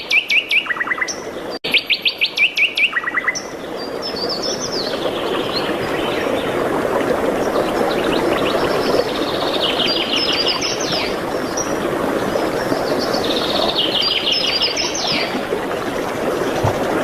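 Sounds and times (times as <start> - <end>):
songbird trilling: 0.0 - 3.5.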